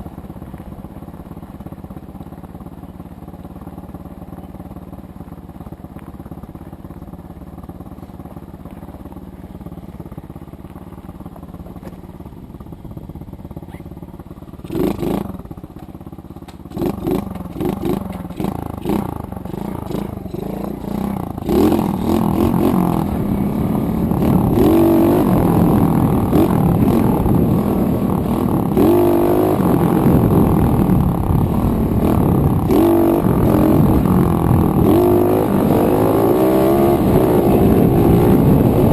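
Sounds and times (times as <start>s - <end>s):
dirt bike engine revving: 14.6s - 15.4s, 16.7s - 38.9s.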